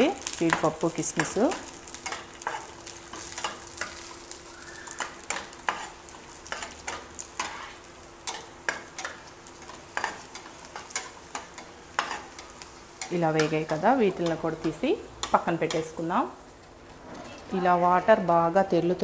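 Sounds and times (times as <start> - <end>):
nuts frying with light sizzle: 0.0 - 19.0
spatula scraping and tapping pan: 4.9 - 15.9.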